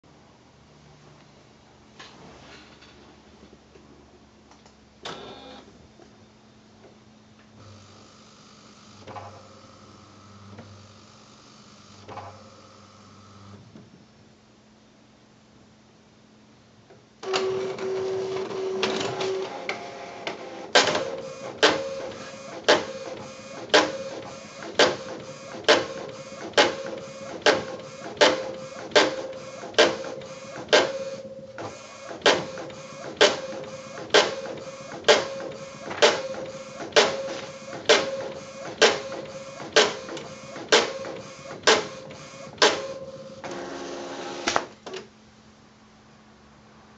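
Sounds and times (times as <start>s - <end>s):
printer clunking: 17.2s - 43.9s
printer mechanism whirring: 17.2s - 45.1s.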